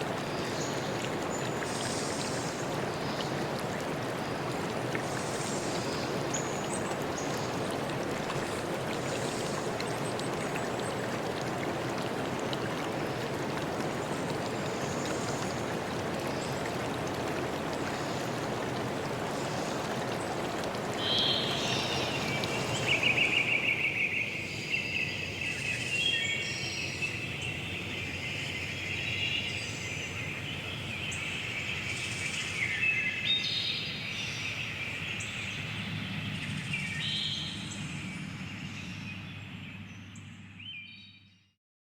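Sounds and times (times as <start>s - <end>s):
running stream water: 0.0s - 38.1s
small birds chirping and trilling: 21.0s - 35.4s.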